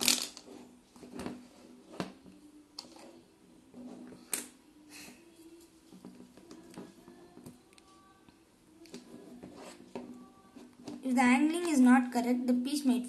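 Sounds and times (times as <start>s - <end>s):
plastic blocks clicking: 0.0s - 0.4s.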